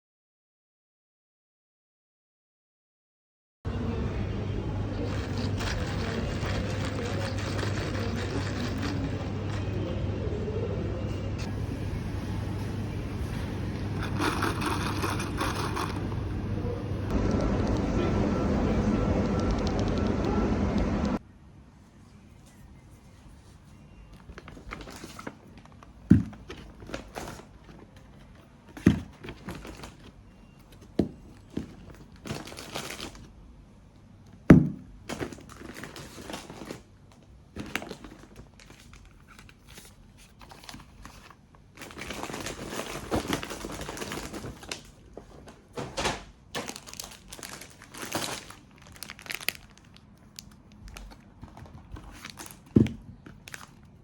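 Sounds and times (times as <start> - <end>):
packaging crinkling and tearing: 24.2 - 28.1, 31.5 - 33.3, 35.1 - 45.2, 46.6 - 54.0.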